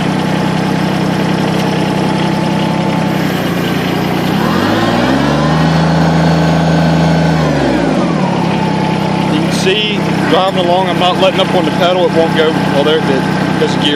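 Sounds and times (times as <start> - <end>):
tractor diesel engine running: 0.0 - 13.9
high whine: 3.0 - 13.9.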